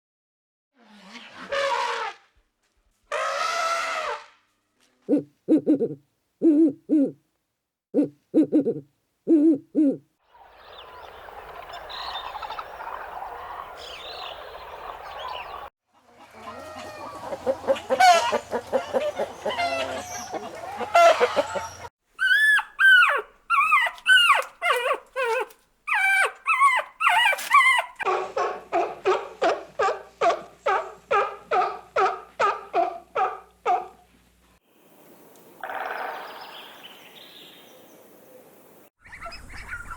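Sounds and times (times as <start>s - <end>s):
owl-like hoots: 5.1s - 7.2s, 8.0s - 10.0s.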